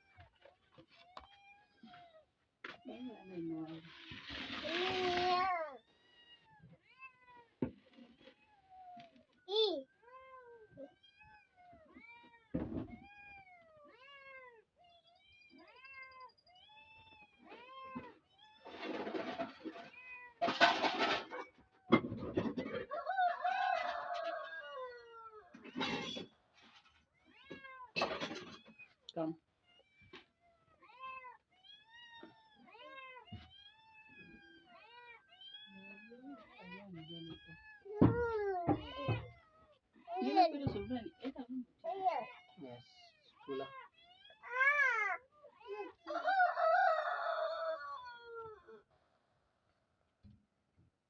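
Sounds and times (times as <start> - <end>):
cat meowing: 27.2 - 41.4, 42.1 - 46.3.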